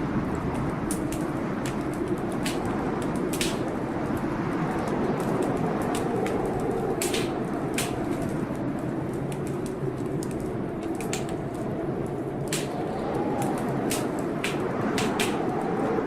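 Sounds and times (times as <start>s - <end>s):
blizzard wind: 0.0s - 16.0s
wood fire crackling: 0.0s - 16.0s
sharp fire pops: 0.8s - 4.2s, 5.2s - 8.5s, 12.3s - 15.6s.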